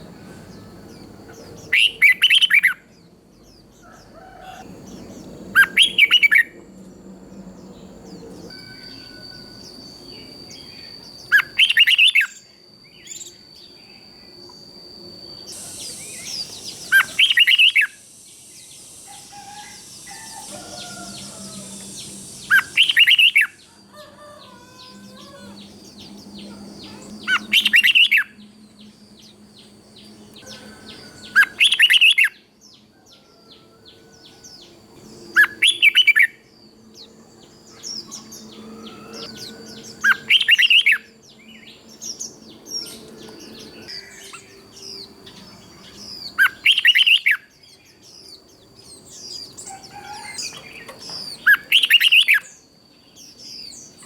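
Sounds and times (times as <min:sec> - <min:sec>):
soft bird chirps: 0:07.3 - 0:54.0
bird whistled phrases: 0:10.6 - 0:13.4, 0:15.5 - 0:18.0, 0:19.1 - 0:25.5, 0:45.8 - 0:47.5.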